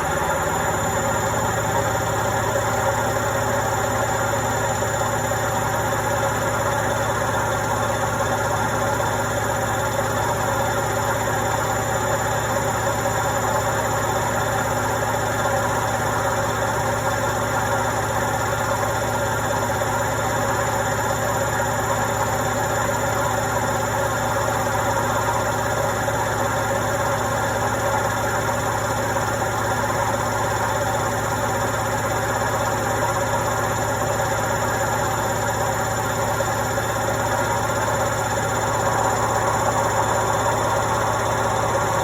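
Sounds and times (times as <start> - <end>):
washing machine running: 0.0 - 42.0.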